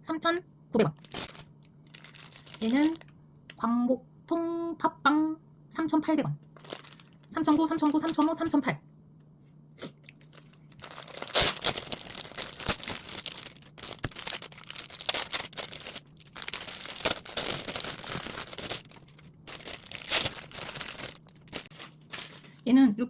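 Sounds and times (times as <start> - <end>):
bread packaging crinkling and tearing: 1.0 - 3.1, 6.6 - 8.4, 10.1 - 22.6.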